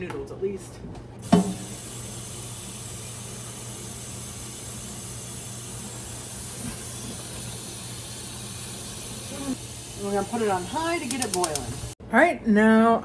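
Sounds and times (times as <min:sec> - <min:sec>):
tap water running into metal pot: 0:01.2 - 0:04.1.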